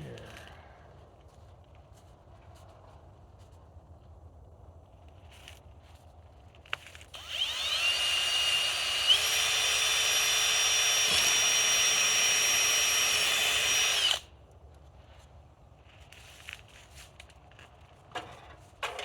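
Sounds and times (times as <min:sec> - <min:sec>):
power drill whining: 0:07.2 - 0:14.2.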